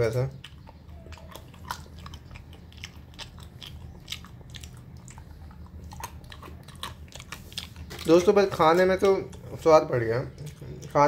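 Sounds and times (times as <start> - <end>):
person crunching nuts: 0.0 - 9.7.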